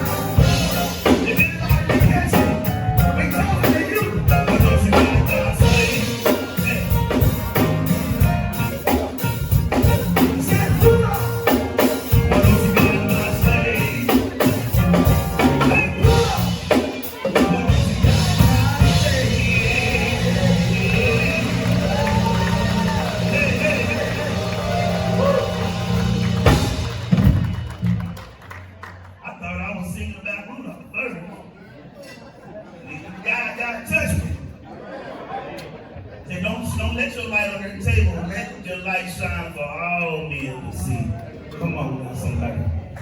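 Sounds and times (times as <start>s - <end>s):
person singing: 0.0s - 26.2s
drum kit beat: 0.0s - 28.3s
live band music: 0.0s - 28.6s.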